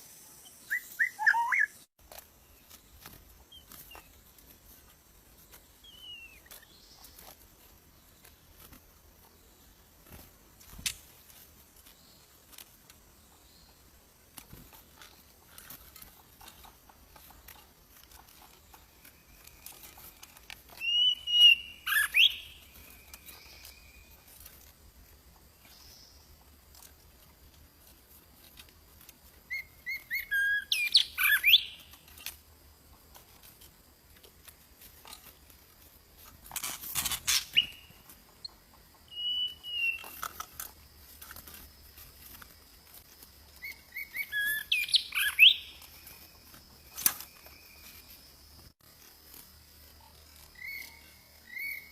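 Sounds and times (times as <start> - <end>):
bird chirping and whistling: 0.4 - 1.9, 20.8 - 22.6, 29.5 - 31.8, 37.3 - 37.8, 39.1 - 40.2, 43.6 - 45.8.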